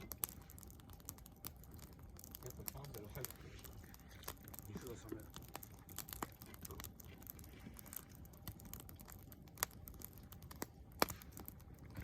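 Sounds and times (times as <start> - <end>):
campfire crackling: 0.0 - 12.0.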